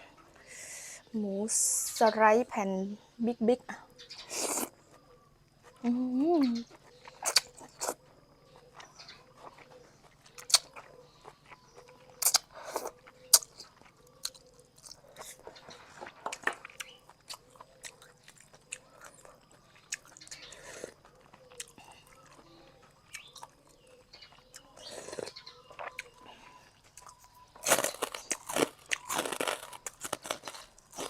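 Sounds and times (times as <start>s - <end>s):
chewing with wet mouth clicks: 6.6s - 15.5s, 16.2s - 31.0s.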